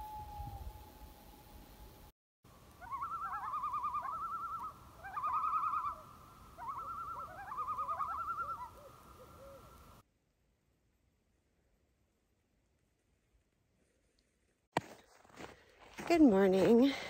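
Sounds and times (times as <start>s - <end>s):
wavering bird-like calls: 2.8s - 10.0s.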